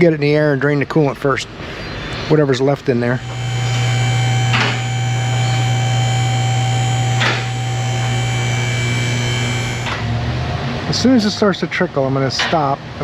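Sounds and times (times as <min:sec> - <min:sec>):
hydraulic pump motor running: 0:03.2 - 0:10.1.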